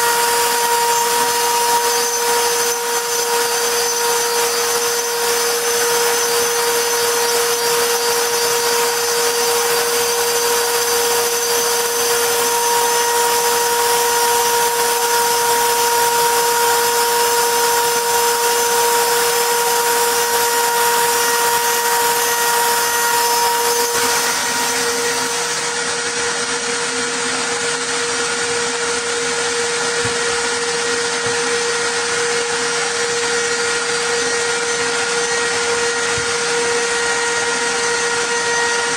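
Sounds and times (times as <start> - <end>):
router spindle whining: 0.0 - 38.9.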